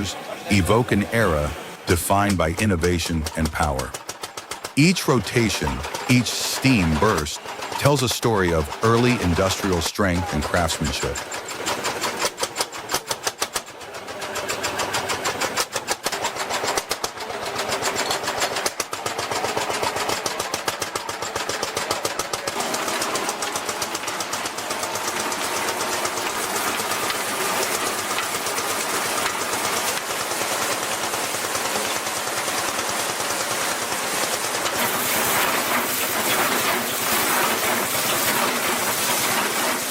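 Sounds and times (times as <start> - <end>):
old engine knocking: 3.9 - 4.8, 7.4 - 7.8, 11.2 - 39.9.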